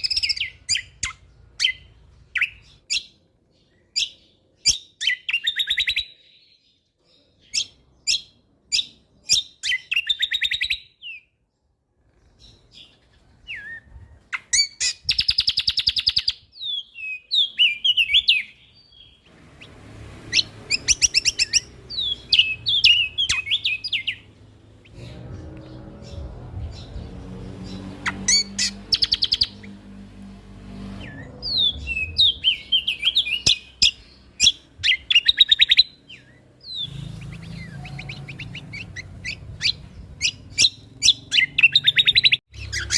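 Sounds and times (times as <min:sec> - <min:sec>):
songbird chirping and trilling: 0:00.0 - 0:42.9
low rumbling background noise: 0:19.1 - 0:34.9.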